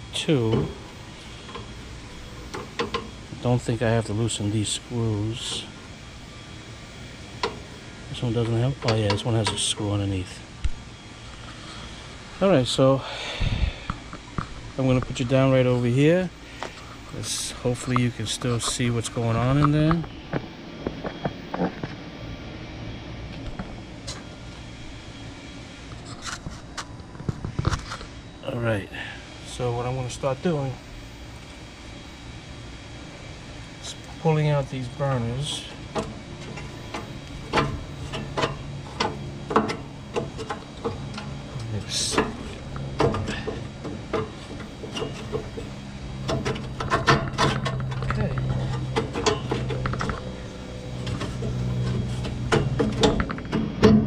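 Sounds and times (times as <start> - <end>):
low background hum: 0.0 - 54.0
metal grill parts clicking: 35.1 - 54.0.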